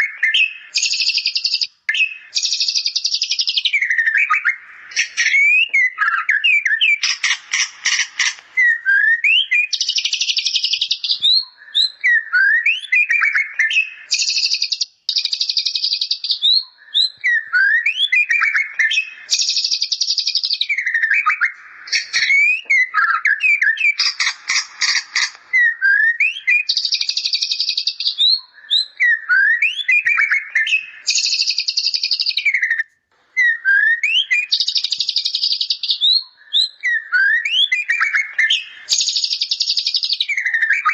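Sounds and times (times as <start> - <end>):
bird singing varied song: 0.0 - 40.9.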